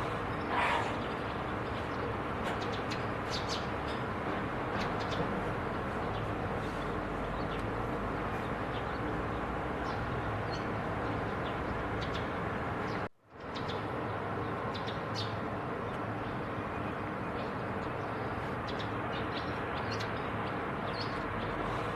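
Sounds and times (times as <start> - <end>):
songbirds high chirps: 9.8 - 21.9.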